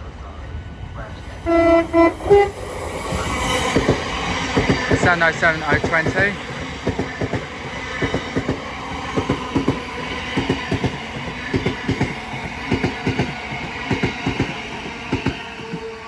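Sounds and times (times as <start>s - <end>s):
electric train passing: 0.0s - 16.0s
train wheels clicking over rail joints: 3.1s - 15.9s.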